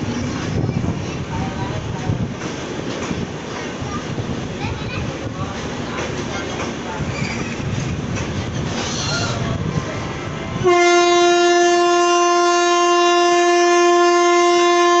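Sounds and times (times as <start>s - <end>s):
train rumbling: 0.0s - 15.0s
train horn blast: 10.6s - 15.0s.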